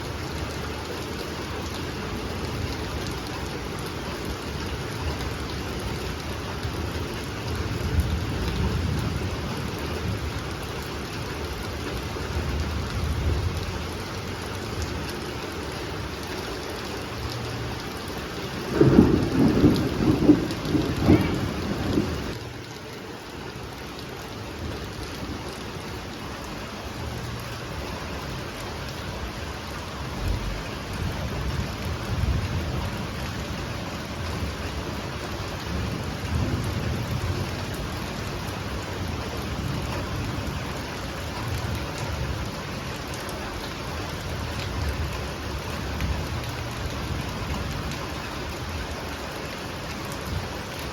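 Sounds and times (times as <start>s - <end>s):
heavy rain falling: 0.0s - 50.9s
thunder rumbling: 18.5s - 22.4s.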